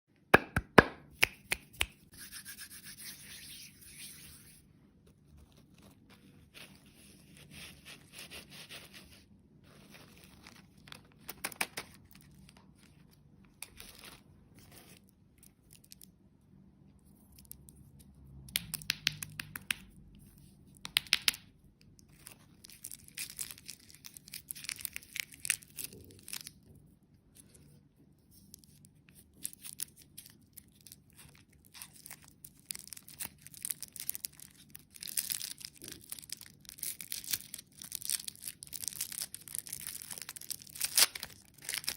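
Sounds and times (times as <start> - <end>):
sharp clicks and taps: 0.4 - 2.0.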